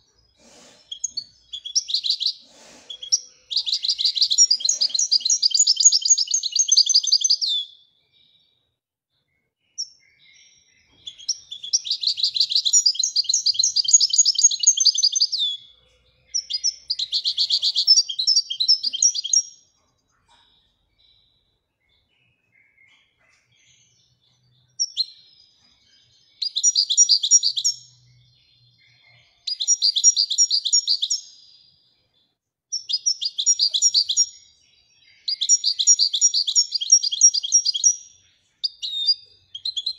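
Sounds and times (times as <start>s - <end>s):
finch twittering song: 0.0s - 39.9s.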